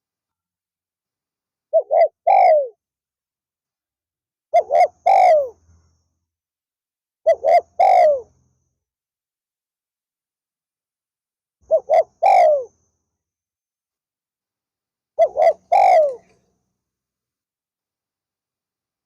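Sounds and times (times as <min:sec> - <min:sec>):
dove cooing: 0:01.7 - 0:02.8, 0:04.5 - 0:05.6, 0:07.2 - 0:08.3, 0:11.6 - 0:12.7, 0:15.2 - 0:16.4.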